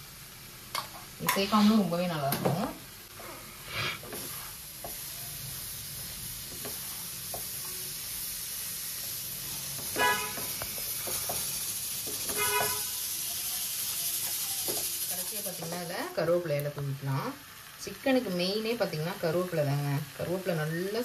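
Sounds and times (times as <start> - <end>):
chicken sizzling in a pan: 0.0 - 21.0
wooden spatula scraping: 3.2 - 5.1
vehicle horn honks: 10.0 - 10.5, 12.3 - 13.0.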